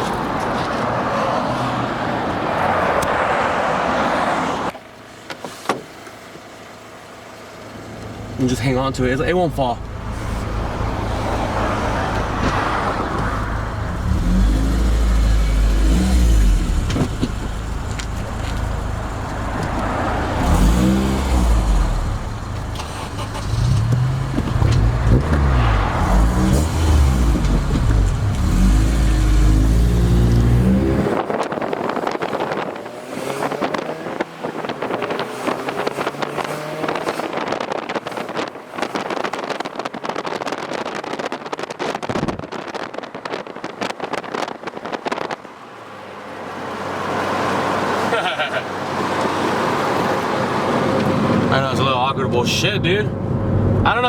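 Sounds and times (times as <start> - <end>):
car engine revving: 8.0 - 42.0.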